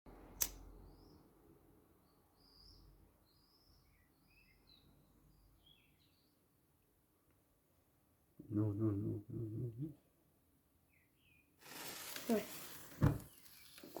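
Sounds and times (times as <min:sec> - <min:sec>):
sharp click: 0:00.4 - 0:00.6
songbird chirping and warbling: 0:02.0 - 0:06.4, 0:10.9 - 0:12.6.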